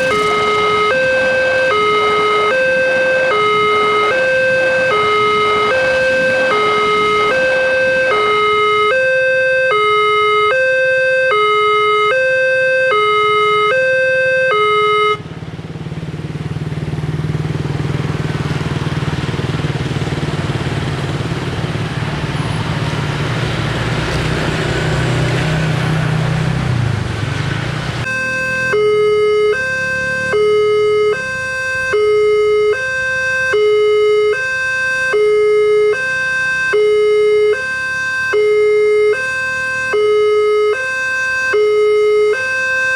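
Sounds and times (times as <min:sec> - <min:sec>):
train wheels rumbling: 0:00.0 - 0:08.8
train engine hum: 0:00.0 - 0:10.4
level crossing two-tone alarm: 0:00.0 - 0:15.2, 0:28.0 - 0:42.9.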